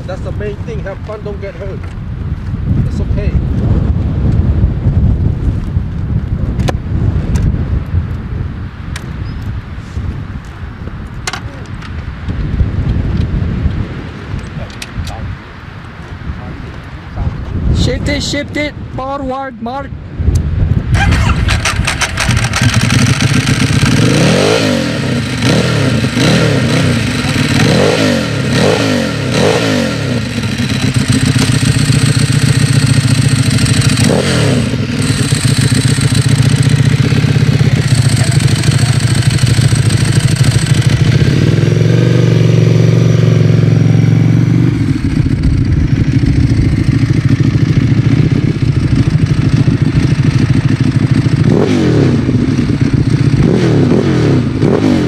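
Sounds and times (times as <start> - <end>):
motorcycle engine revving: 20.9 - 55.0.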